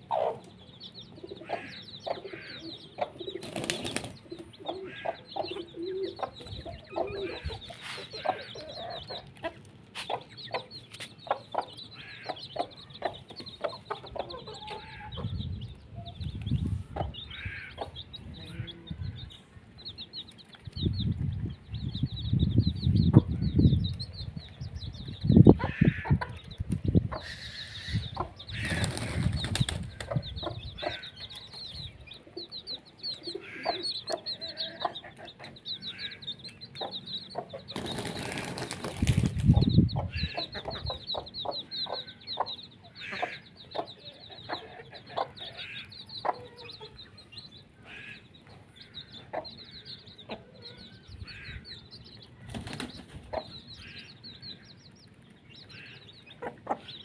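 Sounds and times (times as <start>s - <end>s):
birds chirping: 0.0s - 57.0s
wing flapping: 28.6s - 30.1s, 37.8s - 39.5s.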